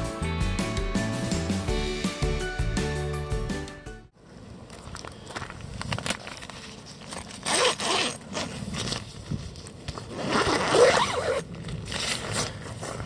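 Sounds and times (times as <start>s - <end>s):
tent zipper being pulled open: 6.9s - 13.0s.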